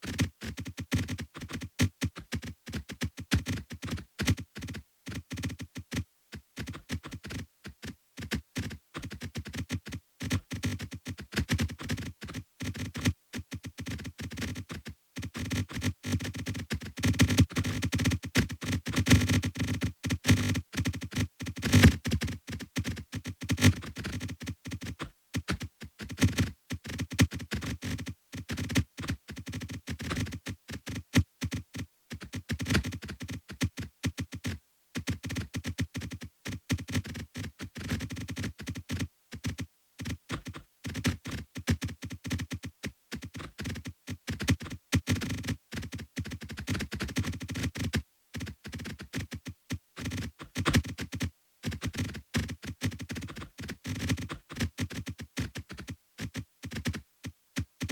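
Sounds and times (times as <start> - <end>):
electronic clicks and thunks: 17.1 - 21.0.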